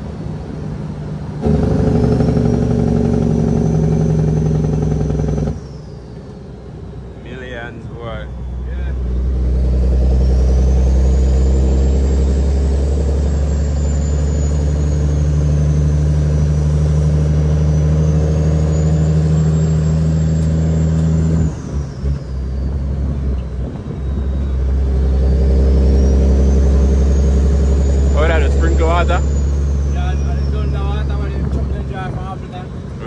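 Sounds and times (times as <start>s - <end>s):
truck diesel engine under load: 0.0s - 33.0s
high whistle: 1.6s - 7.6s, 9.9s - 22.8s, 23.9s - 31.2s.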